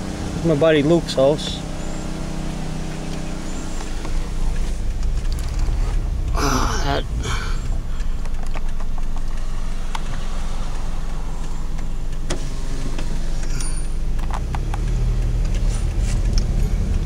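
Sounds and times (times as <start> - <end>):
car engine and road noise: 0.0 - 17.0
light clicks and rattles: 3.8 - 6.4, 7.6 - 17.0.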